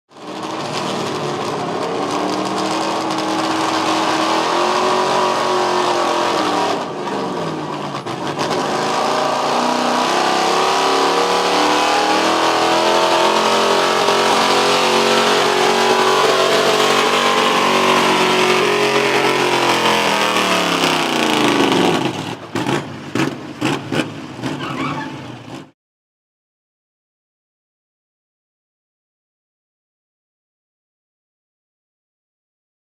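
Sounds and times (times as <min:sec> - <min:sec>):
pickup truck engine at full throttle: 0:00.1 - 0:25.7.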